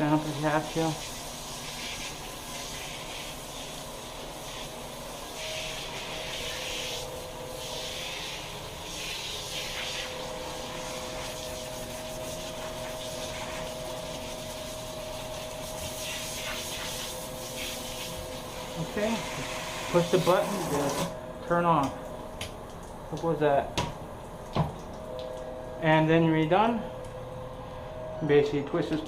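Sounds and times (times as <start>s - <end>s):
thin steady whine: 0.0s - 29.0s
shower spray hissing: 0.1s - 21.1s.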